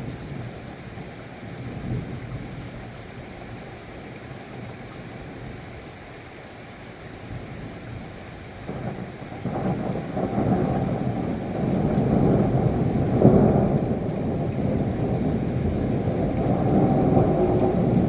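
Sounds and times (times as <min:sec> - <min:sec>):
steady rain: 0:00.0 - 0:18.0
low thunder rumble: 0:08.6 - 0:18.0.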